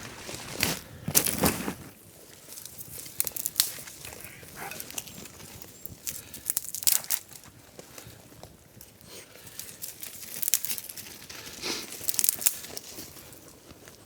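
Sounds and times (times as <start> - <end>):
crunching and rustling: 0.0 - 14.0
sharp crackles and clicks: 2.6 - 7.4, 12.0 - 12.8.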